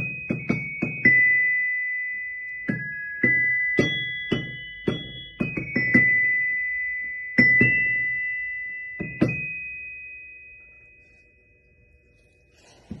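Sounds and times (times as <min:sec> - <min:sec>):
glockenspiel notes: 0:00.0 - 0:13.0.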